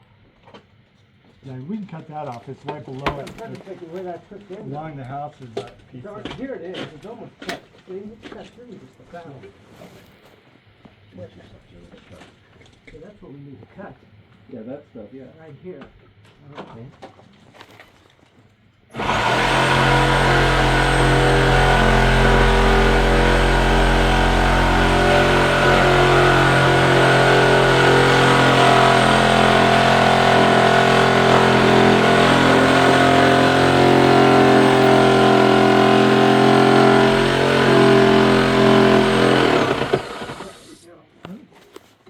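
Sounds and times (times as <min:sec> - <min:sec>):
power saw cutting metal: 0:18.9 - 0:40.8.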